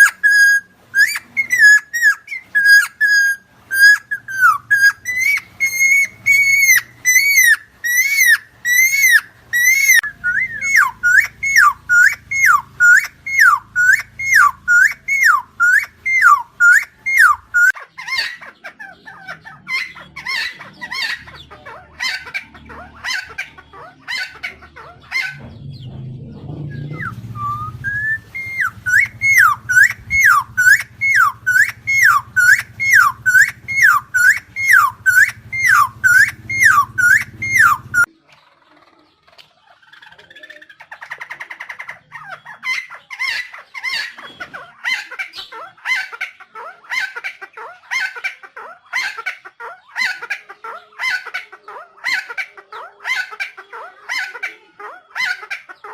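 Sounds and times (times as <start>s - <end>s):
bird whistled calls: 0.0s - 18.4s, 25.1s - 38.1s
bird chatter: 0.0s - 55.9s.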